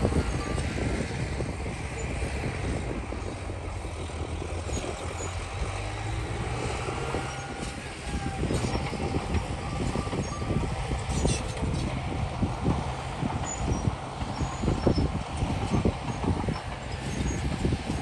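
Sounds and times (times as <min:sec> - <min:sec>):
diesel earthmoving machinery running: 0:00.0 - 0:18.0
metallic knocks and squeaks: 0:04.4 - 0:11.9, 0:13.2 - 0:17.8.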